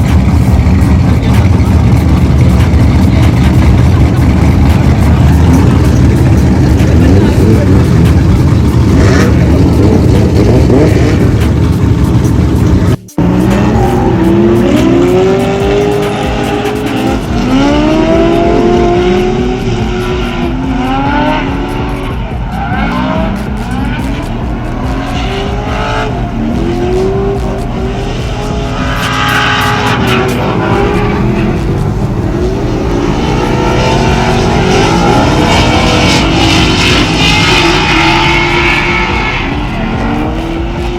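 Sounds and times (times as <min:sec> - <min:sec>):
car engines revving: 0:00.0 - 0:40.9
tyre squeal: 0:28.4 - 0:40.5.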